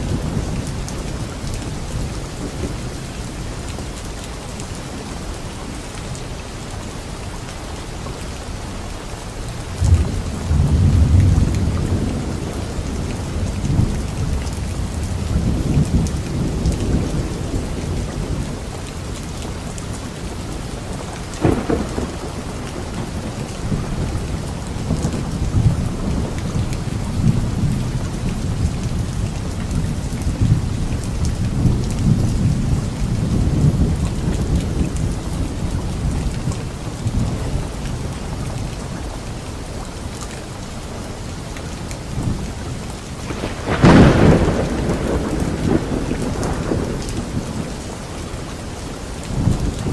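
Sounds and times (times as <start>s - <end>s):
steady rain falling: 0.0s - 49.9s
thunder rumbling: 9.7s - 18.7s, 20.4s - 38.6s, 43.2s - 49.9s
sharp thunderclap: 21.4s - 27.7s, 43.3s - 47.9s.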